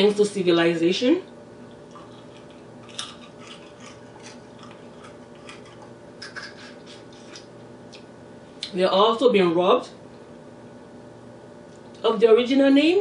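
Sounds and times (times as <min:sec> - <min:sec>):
faint steady hum: 0:00.0 - 0:13.0
chewing with wet mouth clicks: 0:01.9 - 0:08.1.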